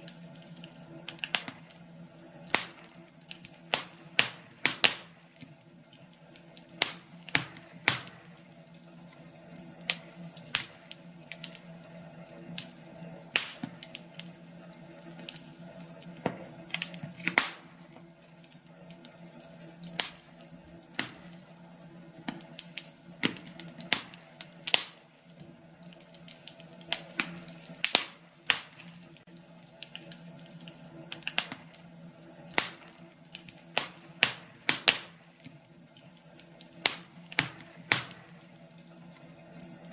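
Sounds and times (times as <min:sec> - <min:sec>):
low steady hum: 0:00.0 - 0:39.9
wood fire crackling and popping: 0:00.0 - 0:39.9.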